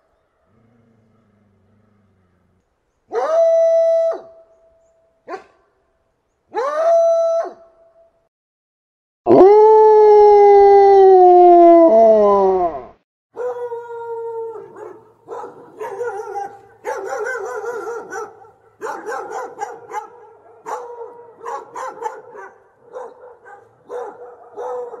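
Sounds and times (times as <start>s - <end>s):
dog barking: 5.2s - 5.7s, 13.4s - 13.9s, 14.5s - 25.0s
dog howling: 13.4s - 25.0s.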